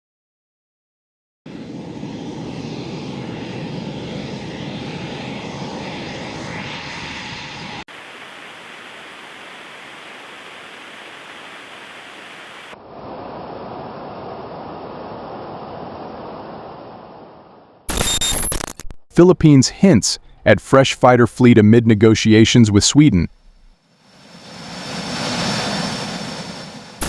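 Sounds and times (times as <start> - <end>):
aircraft engine roar: 1.5 - 12.8, 22.6 - 27.0.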